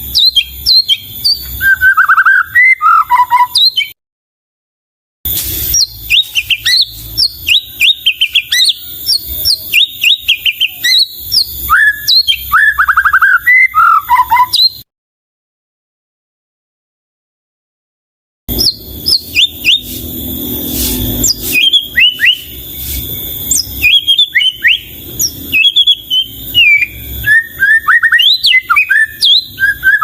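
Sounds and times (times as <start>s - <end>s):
bird singing whistled song: 0.0s - 4.0s, 5.6s - 14.8s, 18.5s - 30.0s.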